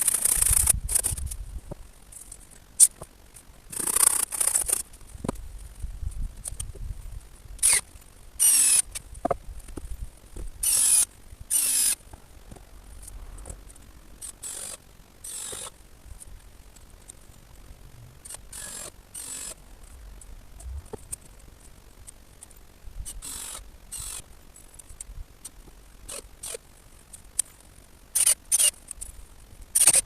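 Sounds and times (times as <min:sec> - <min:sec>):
ratchet spanner ratcheting: 0:00.0 - 0:01.3, 0:03.7 - 0:04.8, 0:08.4 - 0:09.0, 0:10.6 - 0:12.0, 0:14.2 - 0:15.7, 0:18.3 - 0:19.6, 0:28.2 - 0:28.8, 0:29.8 - 0:30.0.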